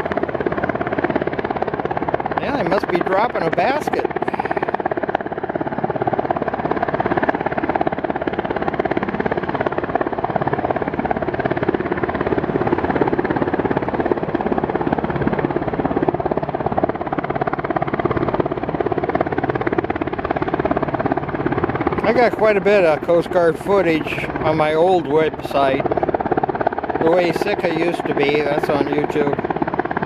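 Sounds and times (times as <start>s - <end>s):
helicopter rotors chopping: 0.0s - 30.0s.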